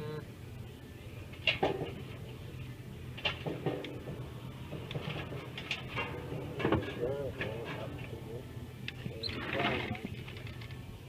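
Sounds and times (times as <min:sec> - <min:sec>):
steel clanking and knocking: 0:03.2 - 0:08.2.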